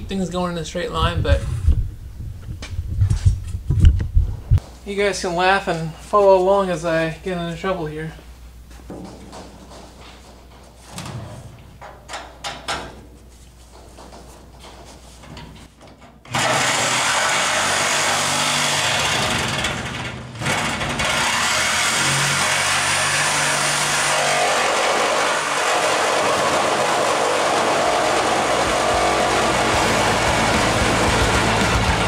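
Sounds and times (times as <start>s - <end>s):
power tool cutting steel: 16.3s - 32.0s.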